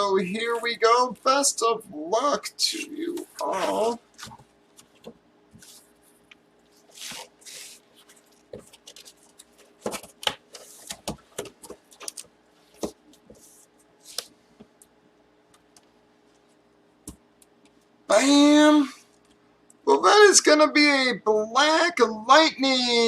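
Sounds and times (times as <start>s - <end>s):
faint steady hum: 0.0s - 23.0s
rustling scrapes: 3.2s - 9.8s.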